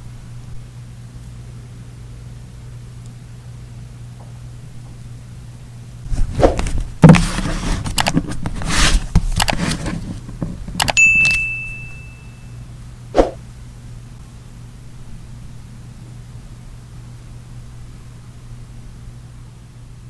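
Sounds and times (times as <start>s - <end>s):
paper rustling: 6.1s - 11.5s
clicks and knocks on desk: 6.2s - 12.0s
metal object ringing: 11.0s - 12.5s.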